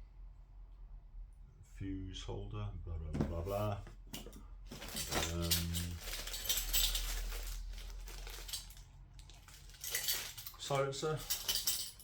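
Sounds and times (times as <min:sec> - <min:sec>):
packaging rustling: 0:04.7 - 0:11.7.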